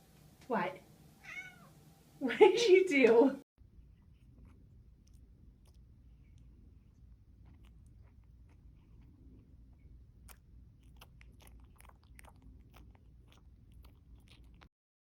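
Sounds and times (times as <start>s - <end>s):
cat chewing crunchily: 3.6s - 14.7s.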